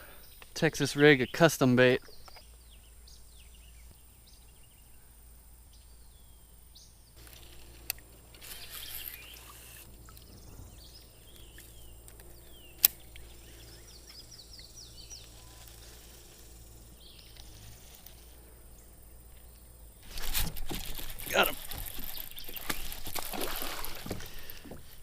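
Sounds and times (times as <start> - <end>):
birds chirping and calling: 8.4 - 19.6, 21.3 - 24.6
sharp clicks: 11.4 - 13.3.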